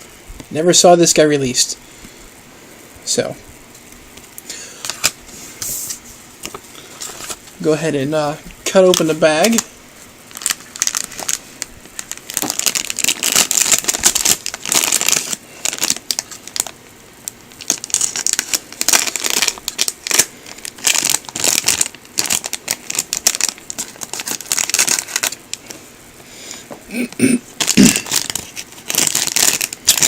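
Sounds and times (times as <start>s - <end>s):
plastic bag crinkling: 6.5s - 7.8s, 8.6s - 25.8s, 26.6s - 30.0s.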